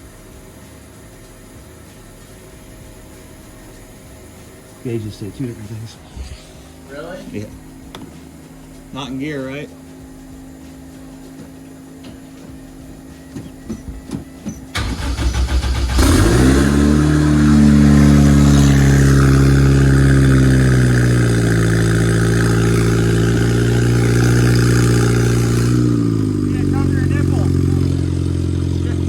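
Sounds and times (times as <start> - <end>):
starter motor cranking: 13.7 - 29.0
car engine revving and idling: 14.7 - 29.0.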